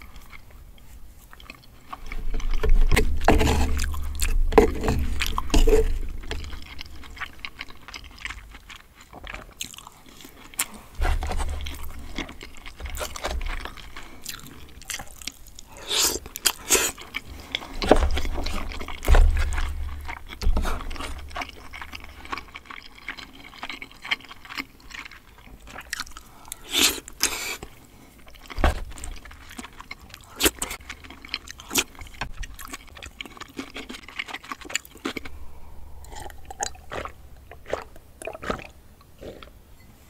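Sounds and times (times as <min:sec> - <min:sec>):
close chewing with mouth smacks: 0:00.0 - 0:39.6
heavy low thumps: 0:02.5 - 0:07.9.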